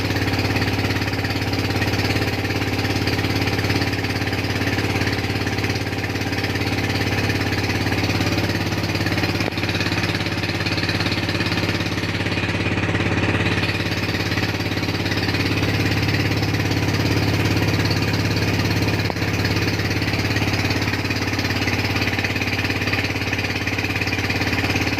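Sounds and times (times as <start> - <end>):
boat engine chugging: 0.0 - 24.9.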